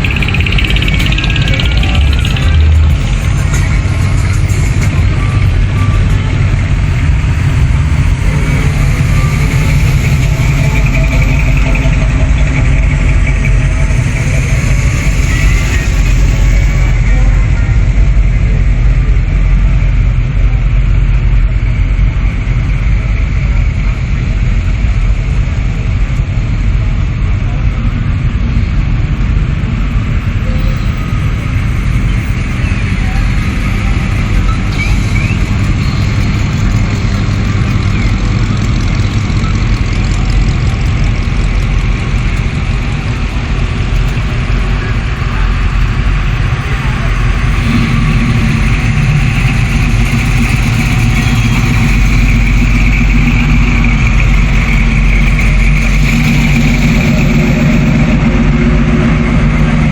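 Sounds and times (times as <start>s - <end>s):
voices in background: 0.0s - 22.2s
car engines rumbling: 0.0s - 59.9s.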